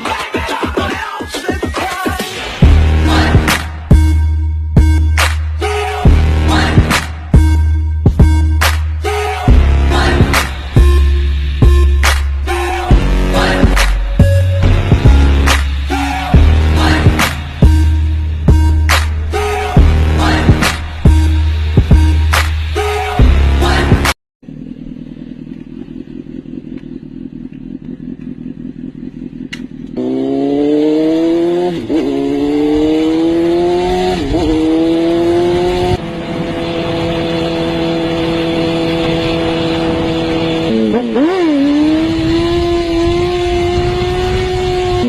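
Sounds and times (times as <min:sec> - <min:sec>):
motorcycle engine accelerating: 0:23.2 - 0:45.0.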